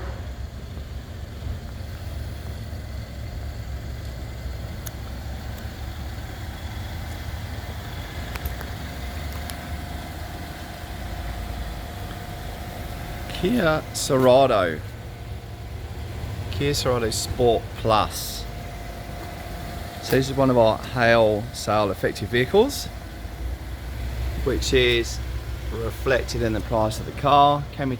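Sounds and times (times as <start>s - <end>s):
car engine idling: 0.0s - 27.9s.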